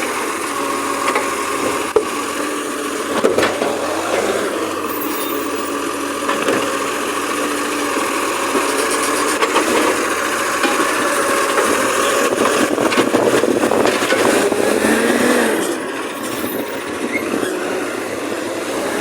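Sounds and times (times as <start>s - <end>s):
garbage truck engine running: 0.0s - 19.0s.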